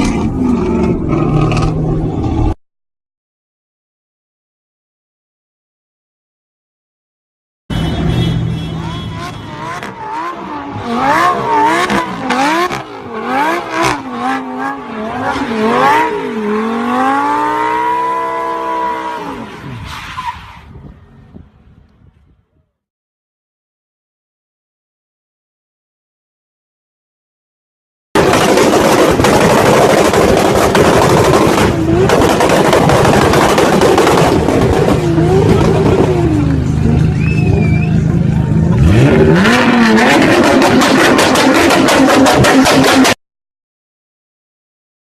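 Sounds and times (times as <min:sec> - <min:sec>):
car engine revving: 0:08.8 - 0:19.8, 0:28.2 - 0:43.2
rough crackling car noise: 0:28.2 - 0:39.2.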